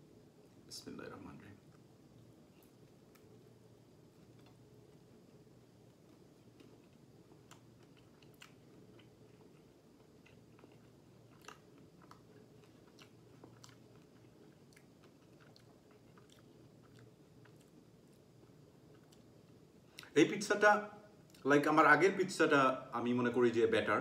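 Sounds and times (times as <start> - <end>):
low room hum: 0.0 - 24.0
faint chewing: 1.7 - 3.5, 4.1 - 20.2.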